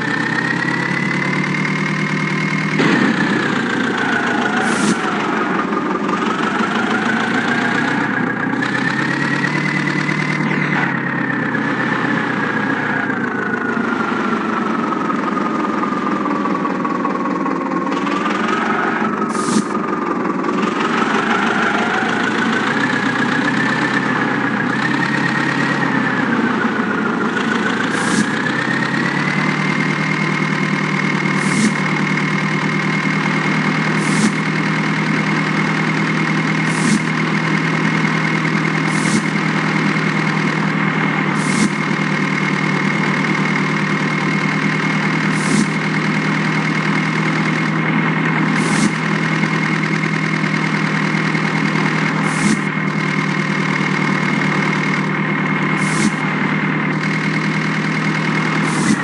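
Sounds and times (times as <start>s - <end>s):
diesel engine with high whine: 0.0s - 59.0s.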